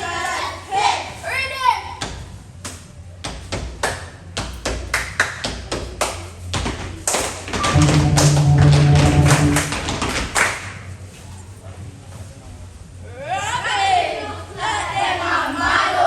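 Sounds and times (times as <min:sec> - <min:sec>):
rhythmic percussive hits: 0:07.6 - 0:10.4
loud steady low tone: 0:07.7 - 0:10.2.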